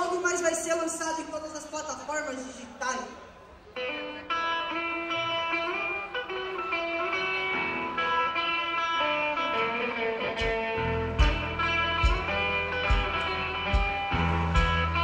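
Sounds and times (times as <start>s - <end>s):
electric guitar notes: 3.4s - 15.0s
bass guitar: 3.8s - 15.0s
drum beats: 10.4s - 15.0s.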